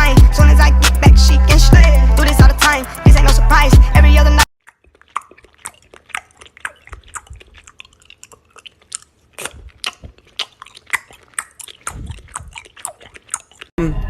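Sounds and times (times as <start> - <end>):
crunchy chewing: 4.6 - 13.8.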